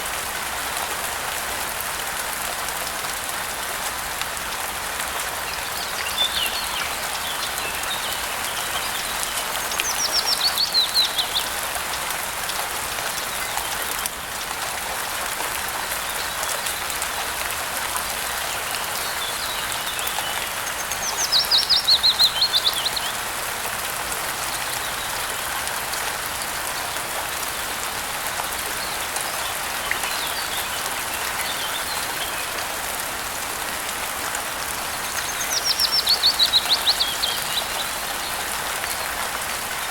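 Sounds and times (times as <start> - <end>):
steady rain falling: 0.0 - 39.9
songbird singing: 5.4 - 11.6, 18.3 - 23.3, 28.7 - 33.0, 34.4 - 39.1.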